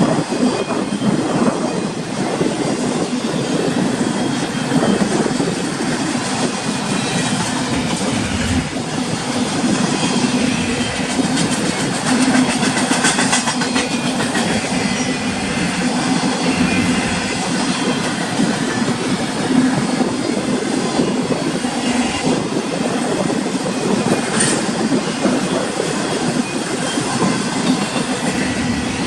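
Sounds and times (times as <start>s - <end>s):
freight train cars rumbling: 0.0s - 29.0s
wheels clattering over rail joints: 3.8s - 20.0s.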